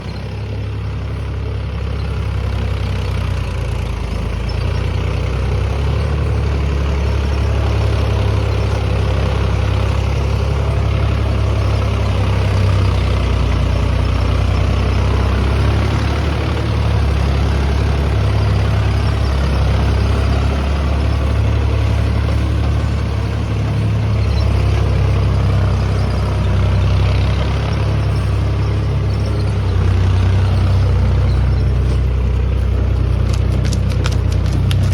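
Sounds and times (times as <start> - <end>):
tractor diesel engine idling: 0.0 - 34.9.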